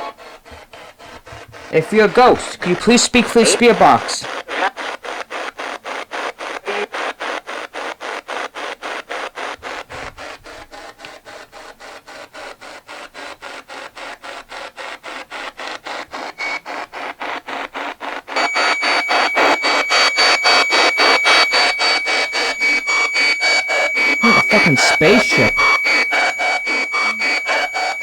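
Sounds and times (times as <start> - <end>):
choppy radio static: 1.8 - 4.8, 18.4 - 28.0
steady high whine: 18.4 - 28.0.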